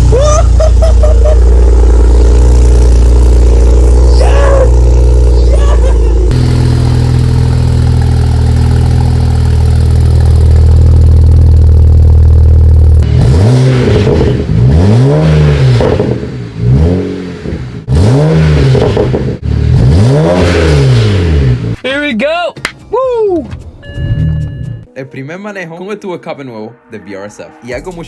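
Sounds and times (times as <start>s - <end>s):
car engine idling and revving: 0.0s - 21.8s.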